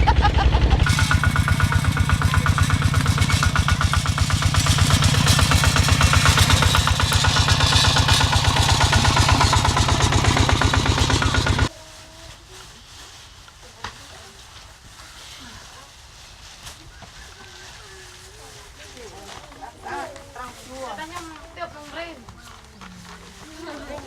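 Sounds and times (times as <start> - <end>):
tractor engine running: 0.0 - 11.7.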